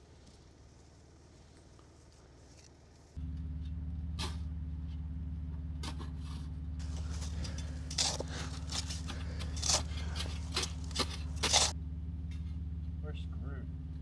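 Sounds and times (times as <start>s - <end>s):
truck engine idling: 3.2s - 14.0s
scraping crunching in snow: 6.8s - 11.8s.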